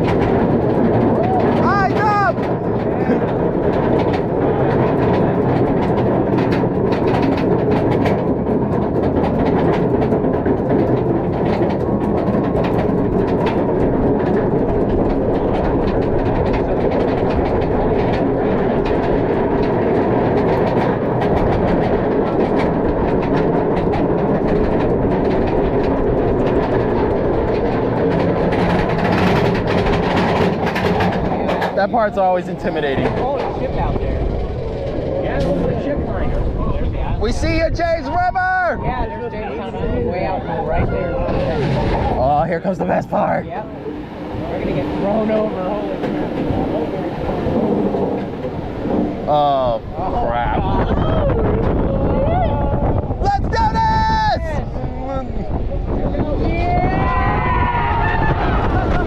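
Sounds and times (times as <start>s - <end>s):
roller coaster chain lift clanking: 0.0s - 54.1s, 54.7s - 59.0s
rapid anti-rollback clicks: 2.4s - 36.5s.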